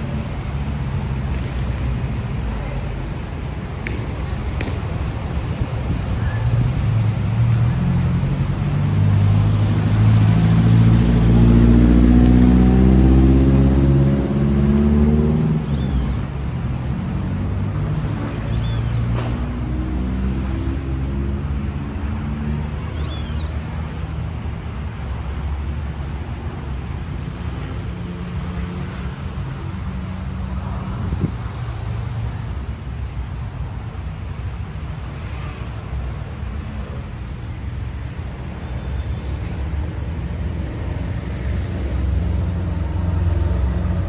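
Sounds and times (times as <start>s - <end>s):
street traffic noise: 0.0s - 44.0s
bird chirping: 23.0s - 23.6s.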